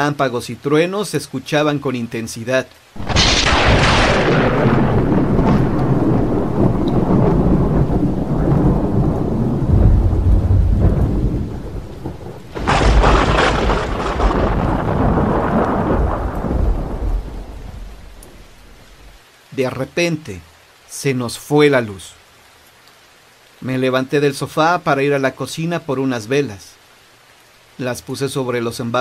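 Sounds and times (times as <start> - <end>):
heavy rain falling: 0.0 - 29.0
sharp thunderclap: 3.0 - 19.2
thunder rumbling: 3.0 - 19.2.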